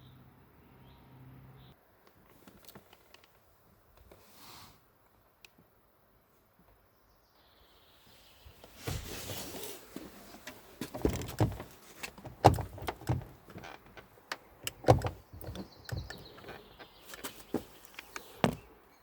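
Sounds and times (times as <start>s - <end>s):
car door knocks and clunks: 10.8s - 13.6s, 14.6s - 16.3s, 18.4s - 18.7s.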